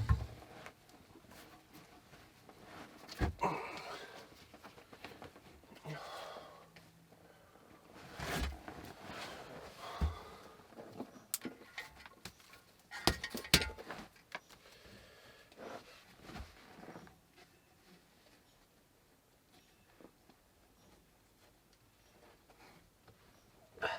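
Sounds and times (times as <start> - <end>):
objects being handled: 11.0 - 14.6.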